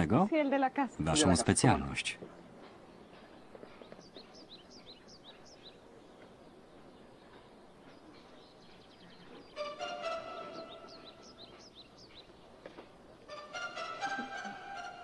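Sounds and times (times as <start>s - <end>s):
small bird chirping: 2.9s - 12.6s.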